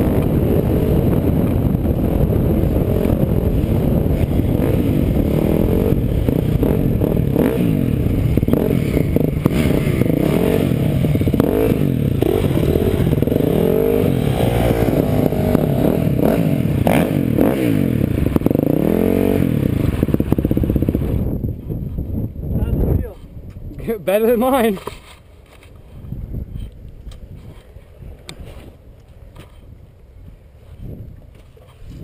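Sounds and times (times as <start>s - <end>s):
off-road vehicle engine revving: 0.0s - 21.3s.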